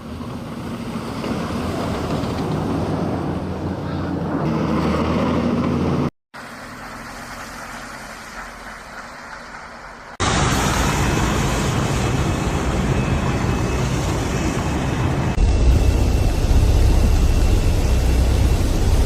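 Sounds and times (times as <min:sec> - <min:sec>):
street ambience: 0:00.0 - 0:19.0
vehicle engine hum: 0:00.0 - 0:19.0.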